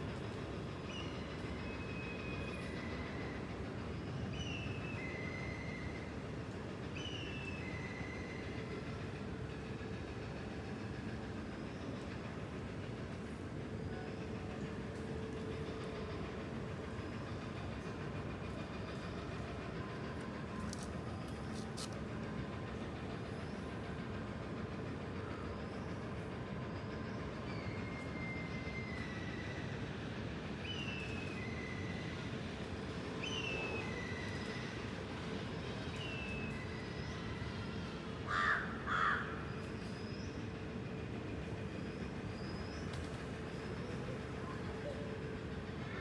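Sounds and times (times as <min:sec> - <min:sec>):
crow cawing: 0:38.3 - 0:39.4.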